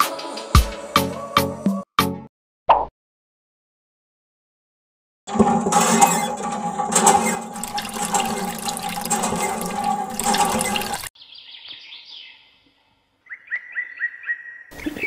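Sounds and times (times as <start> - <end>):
water gushing into metal bucket: 5.3 - 11.1.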